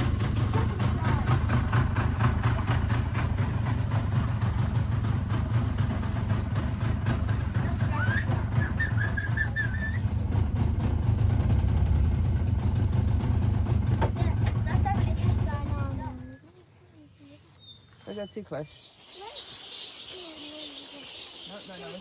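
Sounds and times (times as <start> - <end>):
engine humming: 0.0 - 16.6
high wavering tone: 18.8 - 22.0.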